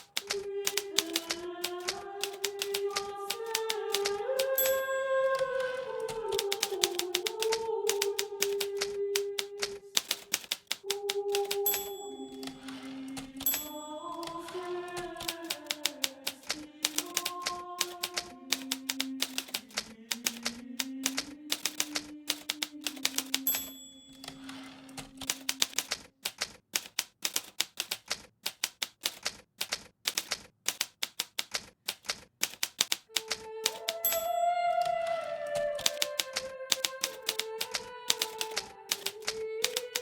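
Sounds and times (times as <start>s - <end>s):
typewriter keys clicking: 0.0s - 35.0s, 35.6s - 40.0s
soft slow background music: 33.4s - 36.8s.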